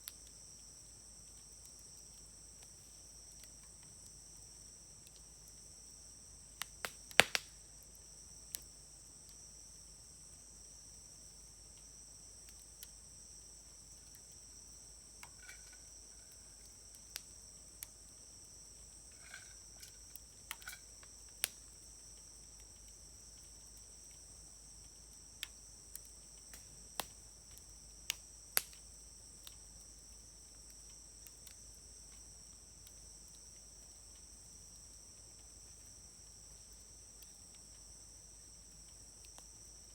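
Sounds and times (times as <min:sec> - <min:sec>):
high insect trill: 0:00.1 - 0:39.9
campfire crackling and popping: 0:06.5 - 0:07.9, 0:15.2 - 0:18.0, 0:18.7 - 0:21.8, 0:24.9 - 0:29.6.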